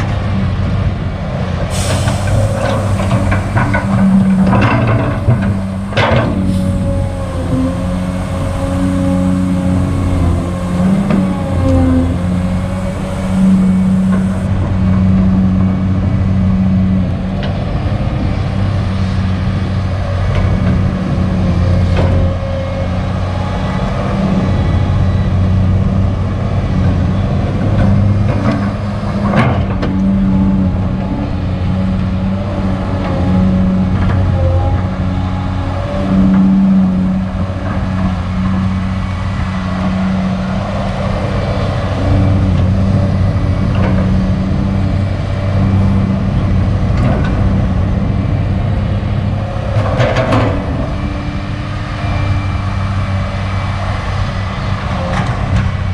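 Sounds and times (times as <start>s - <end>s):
excavator diesel engine working: 0.0s - 55.9s.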